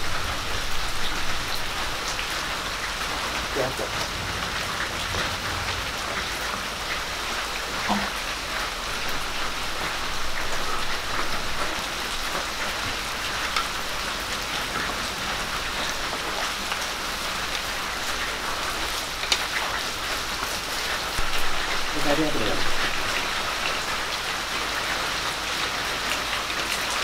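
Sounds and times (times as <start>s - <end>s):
vegetables sizzling in oil: 0.0s - 4.0s, 4.6s - 25.1s.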